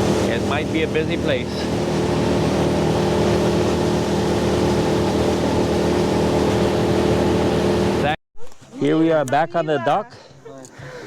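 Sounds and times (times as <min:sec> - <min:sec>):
motorboat engine droning: 0:00.0 - 0:08.2.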